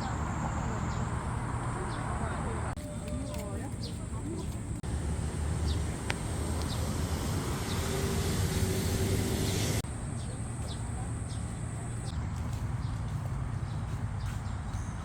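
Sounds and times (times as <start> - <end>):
small birds chirping: 0.0 - 15.0
steady low rumble: 4.0 - 14.2
hiss: 4.9 - 9.8.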